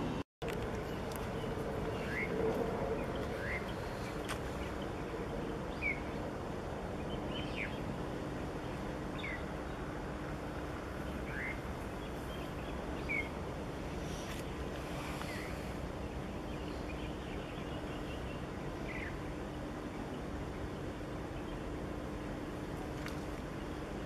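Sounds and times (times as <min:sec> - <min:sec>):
bird chirping: 0:00.8 - 0:06.3, 0:07.0 - 0:07.9, 0:08.6 - 0:09.9, 0:11.0 - 0:13.4, 0:14.0 - 0:21.7.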